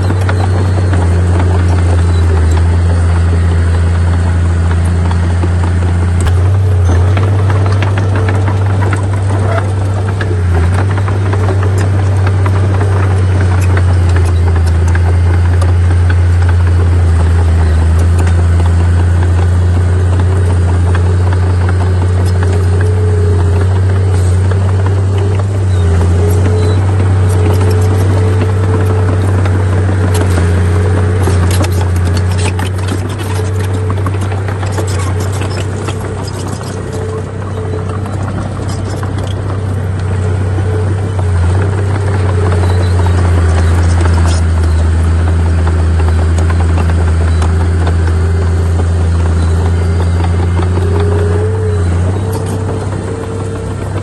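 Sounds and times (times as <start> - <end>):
diesel engine running: 0.0 - 54.0
rattling clicks: 0.0 - 54.0.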